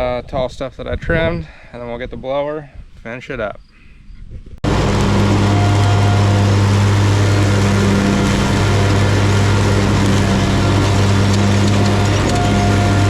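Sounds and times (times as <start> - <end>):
riding mower engine humming: 4.6 - 13.0.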